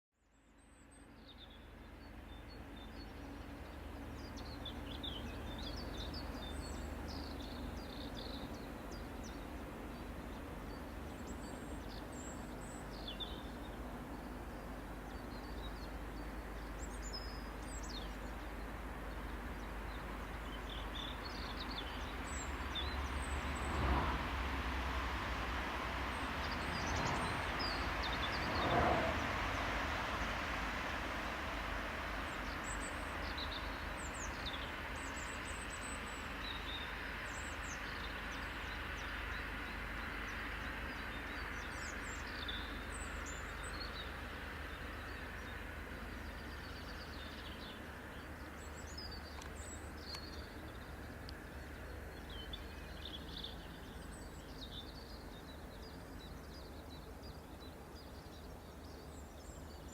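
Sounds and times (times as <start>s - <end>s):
songbirds chirping: 0.3s - 59.9s.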